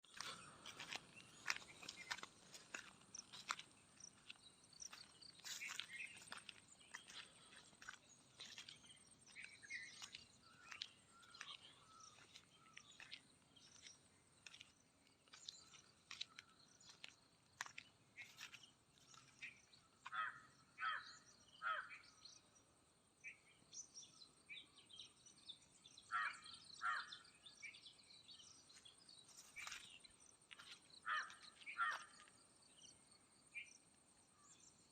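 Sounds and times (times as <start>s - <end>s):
bird chirps: 0.0s - 22.5s.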